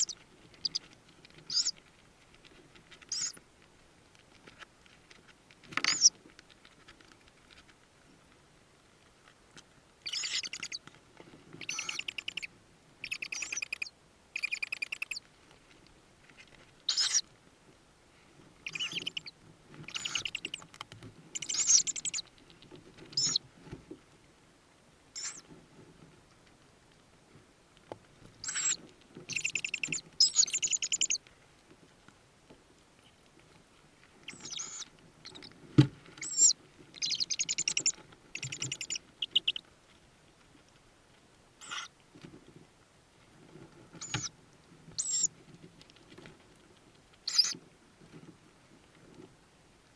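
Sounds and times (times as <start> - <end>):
owl chicks chittering: 0.0 - 1.8, 3.0 - 3.4, 5.8 - 6.2, 10.0 - 10.9, 11.6 - 15.3, 16.9 - 17.2, 18.6 - 23.5, 25.2 - 25.5, 28.4 - 31.2, 34.2 - 35.6, 36.2 - 39.7, 41.6 - 41.9, 44.0 - 45.3, 47.2 - 47.6.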